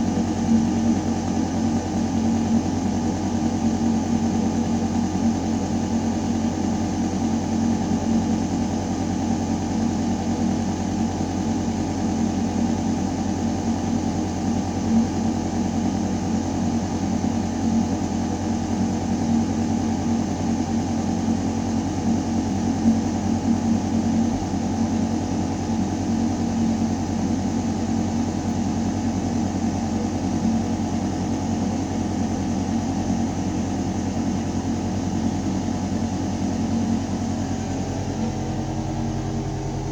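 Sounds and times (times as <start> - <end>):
deep mechanical hum: 0.0 - 39.9.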